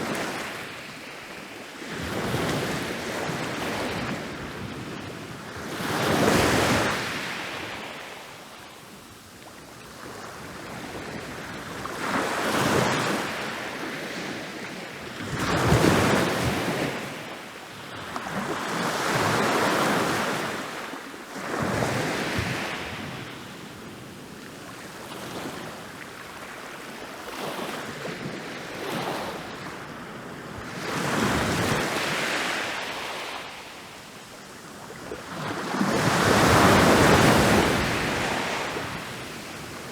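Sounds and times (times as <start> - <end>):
ocean waves crashing on beach: 34.9 - 39.9.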